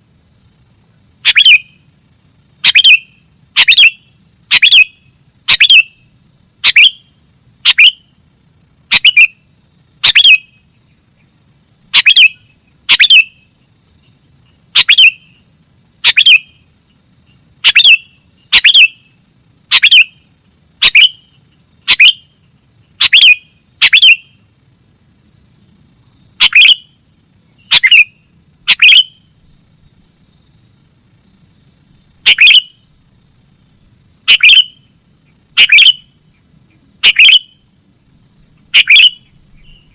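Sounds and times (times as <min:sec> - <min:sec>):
bird calling in sharp notes: 0:01.2 - 0:01.7, 0:02.6 - 0:04.9, 0:05.5 - 0:06.0, 0:06.6 - 0:07.0, 0:07.6 - 0:08.0, 0:08.9 - 0:09.3, 0:10.0 - 0:10.5, 0:12.0 - 0:13.3, 0:14.8 - 0:15.3, 0:16.0 - 0:16.6, 0:17.6 - 0:19.0, 0:19.7 - 0:20.2, 0:20.8 - 0:21.2, 0:21.9 - 0:22.2, 0:23.0 - 0:24.2, 0:26.4 - 0:26.9, 0:27.6 - 0:29.2, 0:32.2 - 0:32.8, 0:34.3 - 0:34.7, 0:35.6 - 0:36.0, 0:37.0 - 0:37.5, 0:38.7 - 0:39.2.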